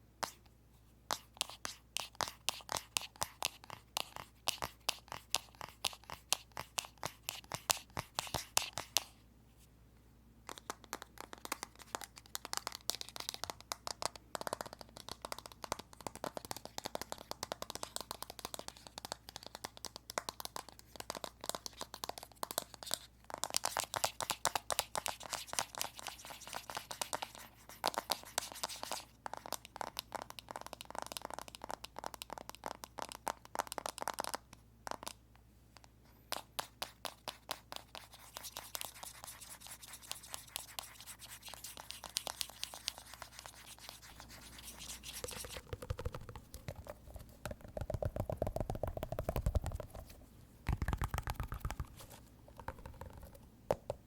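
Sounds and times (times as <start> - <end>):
fingers tapping on phone screen: 10.5 - 35.2, 35.8 - 54.0.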